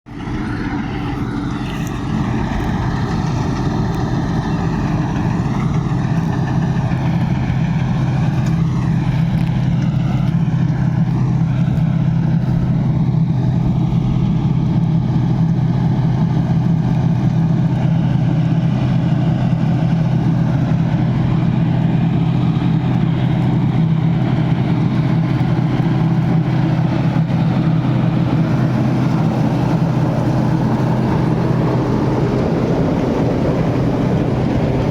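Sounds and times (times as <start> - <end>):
tractor diesel engine droning: 0.1 - 34.9.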